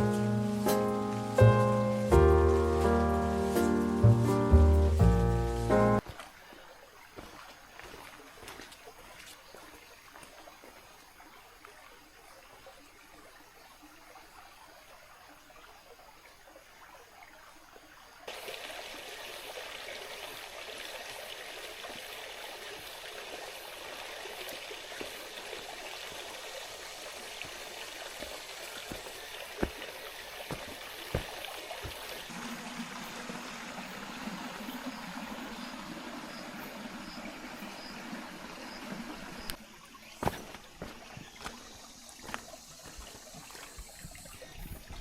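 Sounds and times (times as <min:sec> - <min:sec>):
river water rushing: 0:18.3 - 0:43.7.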